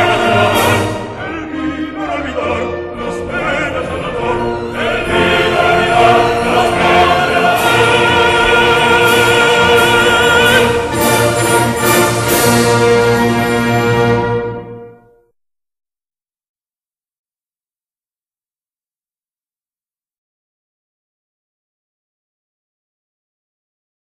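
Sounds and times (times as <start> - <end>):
operatic singing: 0.0 - 14.9
orchestra playing: 0.0 - 15.2.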